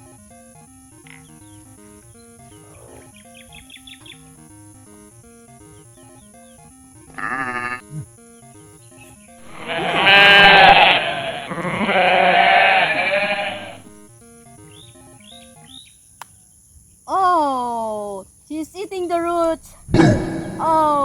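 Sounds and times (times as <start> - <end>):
background music: 0.0 - 15.9
sheep bleating: 7.1 - 8.0, 9.4 - 13.9.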